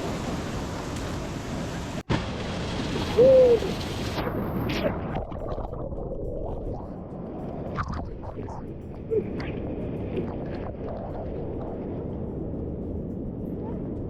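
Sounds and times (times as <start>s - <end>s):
person hooting: 3.2s - 3.7s.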